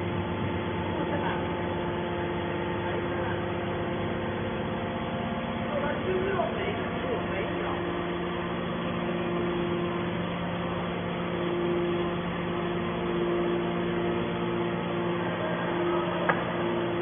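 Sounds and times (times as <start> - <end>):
baler machine humming: 0.0 - 17.0.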